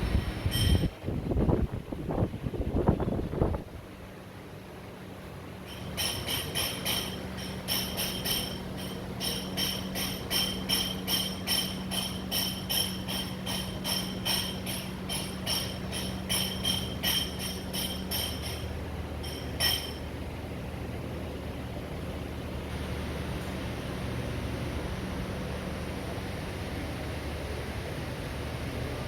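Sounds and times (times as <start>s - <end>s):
steady low hum: 0.0s - 29.0s
metallic jingling strikes: 5.6s - 20.1s.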